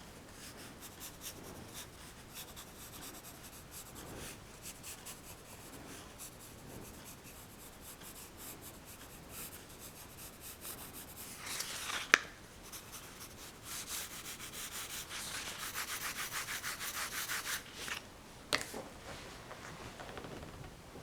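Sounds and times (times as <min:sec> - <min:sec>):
pencil scratching on paper: 0:00.4 - 0:12.0, 0:12.6 - 0:17.8.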